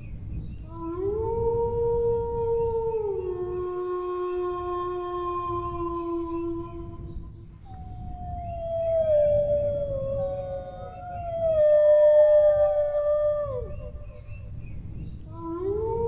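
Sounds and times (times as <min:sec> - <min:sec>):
low rumble: 0:00.0 - 0:15.9
dogs howling: 0:07.7 - 0:14.4.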